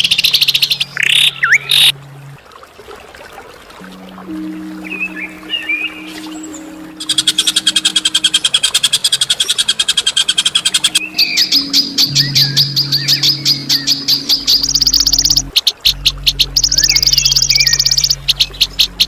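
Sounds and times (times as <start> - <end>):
low background music tones: 0.0 - 2.8, 3.8 - 19.0
songbird singing sharp notes: 4.2 - 19.0.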